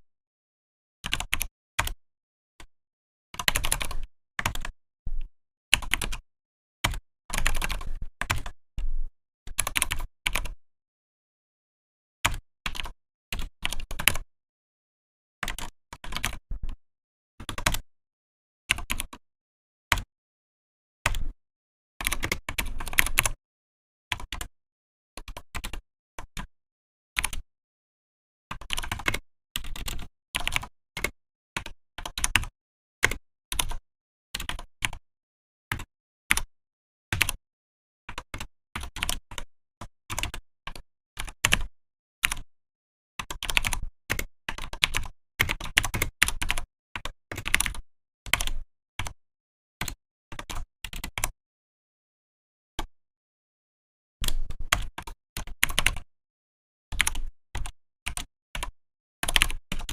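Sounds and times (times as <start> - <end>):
keyboard typing: 3.4 - 4.7, 6.8 - 8.6, 43.2 - 49.2.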